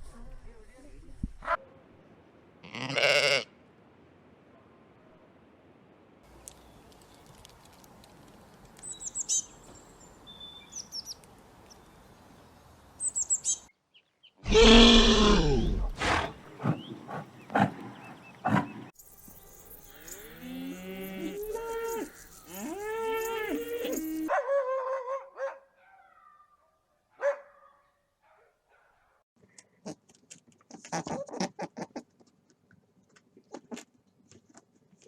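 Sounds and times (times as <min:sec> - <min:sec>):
bird chirps: 0:08.8 - 0:14.4, 0:16.5 - 0:24.3
overlapping animal calls: 0:14.4 - 0:18.9, 0:20.4 - 0:24.3
cow mooing: 0:14.5 - 0:16.4, 0:20.1 - 0:24.3.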